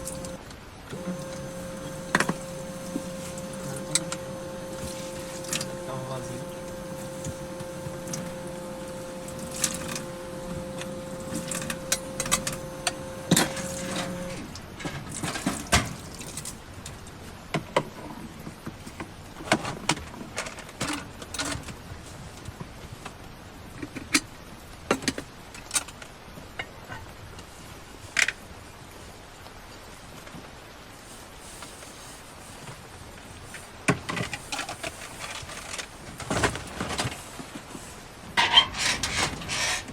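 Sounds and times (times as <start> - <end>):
steady hum: 0.0 - 14.7.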